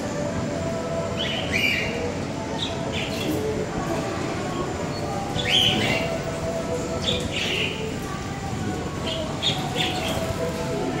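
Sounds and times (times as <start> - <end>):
background murmur: 0.0 - 11.0
small birds chirping: 4.9 - 6.3, 6.9 - 8.4, 9.0 - 10.4.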